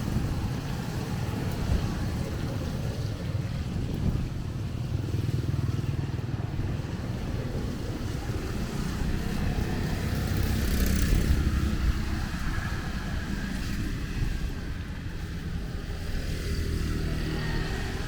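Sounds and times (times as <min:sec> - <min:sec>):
motorbikes passing: 0:00.0 - 0:18.0
rain: 0:00.0 - 0:18.0.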